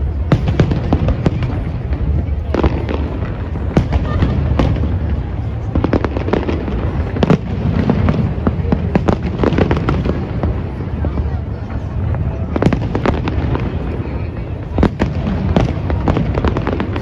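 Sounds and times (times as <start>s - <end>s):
fireworks bangs and pops: 0.0s - 17.0s.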